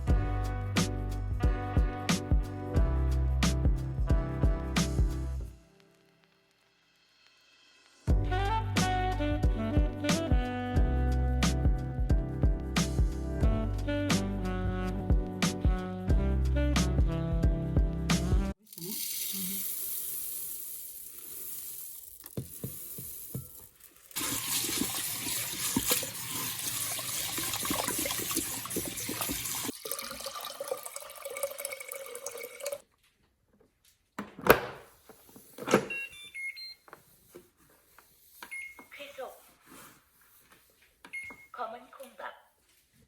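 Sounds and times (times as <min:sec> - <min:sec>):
water splashing: 0:24.2 - 0:32.8
short electronic beeps: 0:38.5 - 0:38.9.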